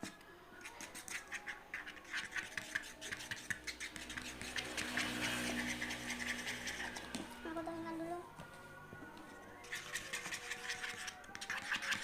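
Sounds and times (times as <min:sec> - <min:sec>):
stirrer scraping a container: 0:00.7 - 0:07.2, 0:09.6 - 0:12.0.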